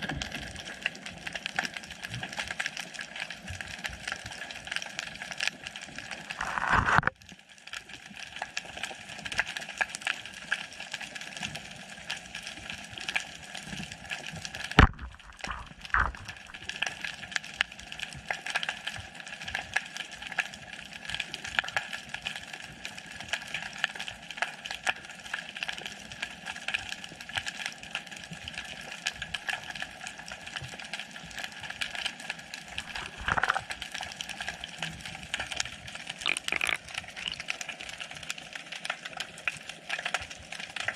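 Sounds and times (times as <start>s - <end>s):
underwater crackle of clicks: 4.2s - 7.2s, 14.1s - 17.4s, 32.6s - 34.6s, 35.4s - 40.9s
water rush: 14.8s - 16.6s, 32.7s - 33.7s.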